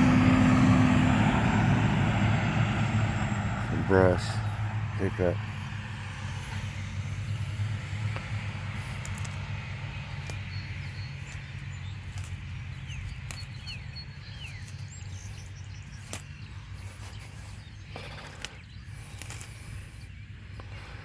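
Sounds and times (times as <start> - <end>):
low rumble: 0.0 - 21.0
bird chirps: 8.8 - 21.0.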